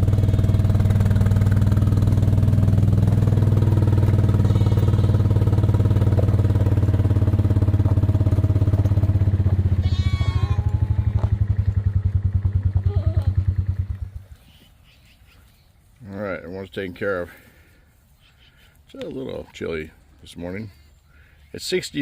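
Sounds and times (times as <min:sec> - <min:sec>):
small vehicle engine running: 0:00.0 - 0:14.4.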